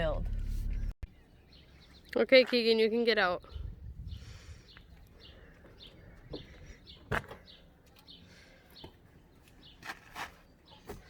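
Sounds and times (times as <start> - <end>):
birds chirping: 0.2 - 11.0.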